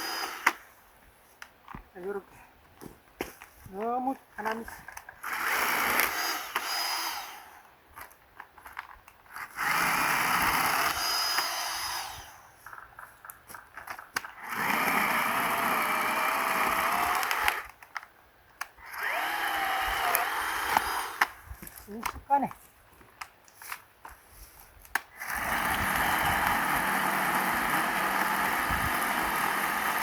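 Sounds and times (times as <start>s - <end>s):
cordless saw cutting firewood: 0.0s - 0.7s, 5.2s - 7.7s, 9.3s - 12.8s, 14.2s - 17.8s, 18.6s - 22.5s, 25.0s - 30.0s.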